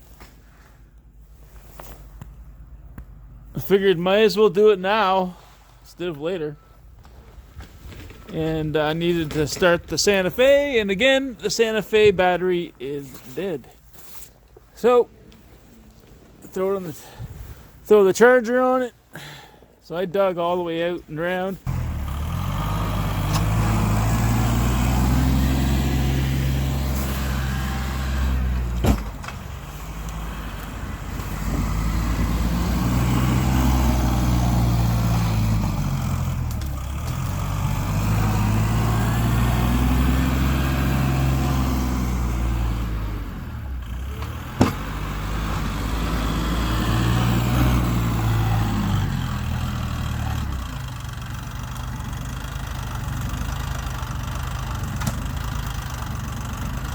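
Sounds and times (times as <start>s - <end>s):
vehicle engine revving: 21.6s - 56.9s.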